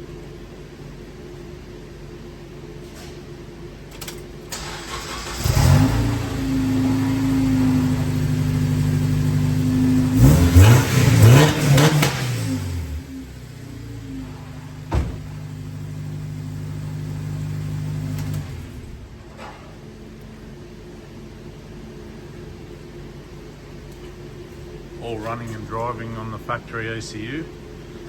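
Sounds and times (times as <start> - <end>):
car engine cranking and idling: 3.9 - 20.4, 24.9 - 28.0
engine throttle blips: 4.6 - 19.3.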